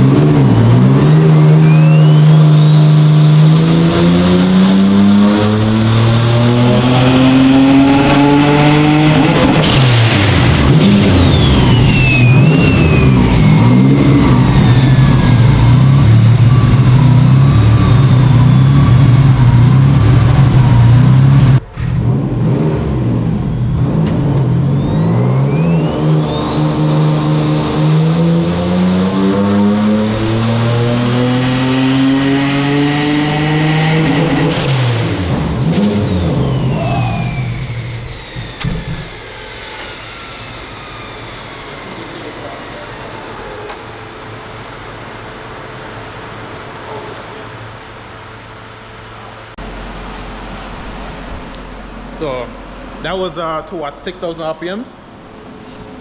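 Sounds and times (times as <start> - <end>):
car engine revving on dyno: 0.0 - 53.2
turbo whistle: 1.0 - 6.7, 10.4 - 19.8, 24.6 - 30.8, 34.4 - 43.2.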